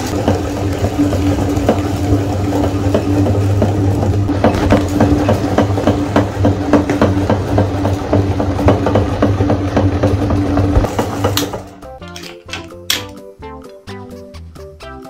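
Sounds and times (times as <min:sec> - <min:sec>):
meat grinder motor hum: 0:00.0 - 0:11.8.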